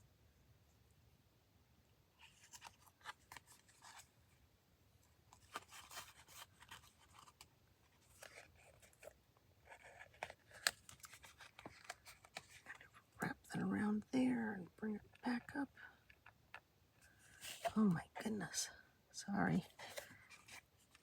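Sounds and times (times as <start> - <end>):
paper rustling and scratching: 2.2 - 4.1, 5.3 - 13.1.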